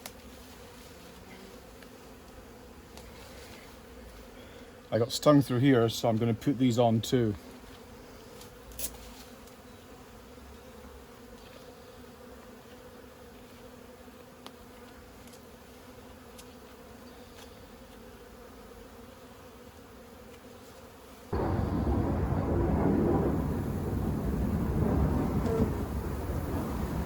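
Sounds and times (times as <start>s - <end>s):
bees buzzing: 0.0s - 27.0s.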